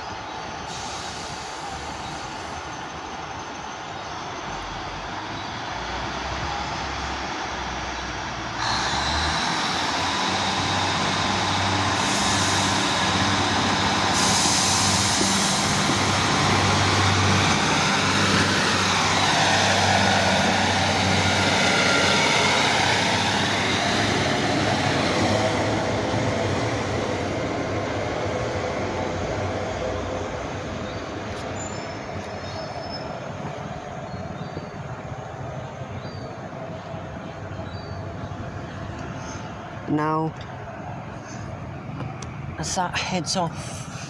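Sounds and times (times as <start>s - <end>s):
diesel train engines pulling away: 0.0s - 44.0s.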